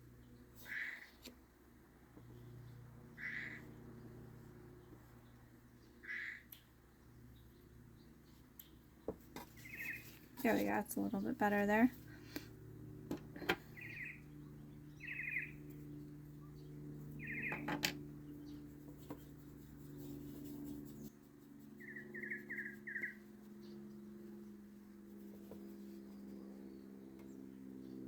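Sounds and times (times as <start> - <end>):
faint steady hum: 0.0 - 28.0
small bird chirping: 9.5 - 10.7, 13.6 - 24.1.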